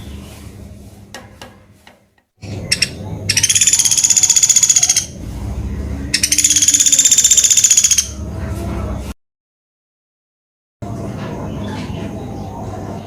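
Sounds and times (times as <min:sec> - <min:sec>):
woodpecker rattling trill: 0:02.4 - 0:05.2, 0:06.2 - 0:08.2.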